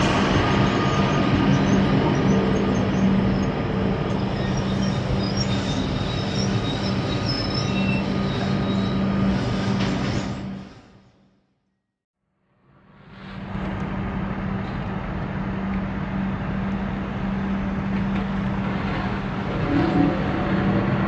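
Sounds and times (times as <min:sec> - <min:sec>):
high-pitched wheel squeals: 0:00.0 - 0:11.0
train wheels rumbling on rails: 0:00.0 - 0:11.3, 0:13.0 - 0:21.0.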